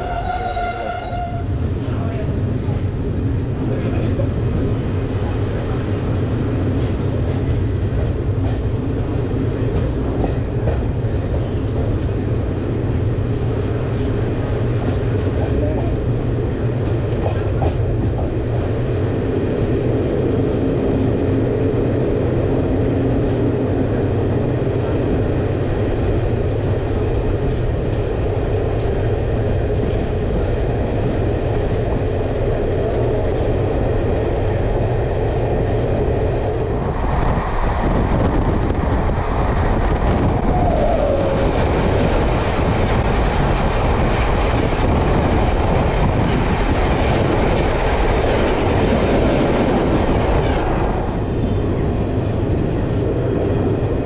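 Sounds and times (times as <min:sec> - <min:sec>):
train coaches rumbling and rattling: 0:00.0 - 0:54.0.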